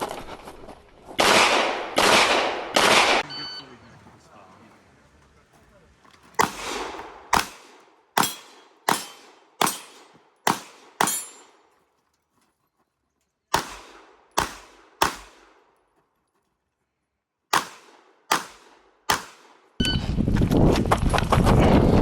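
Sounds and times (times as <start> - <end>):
pistol shots: 1.2 - 3.3, 6.4 - 11.6, 13.5 - 15.7, 17.5 - 19.7.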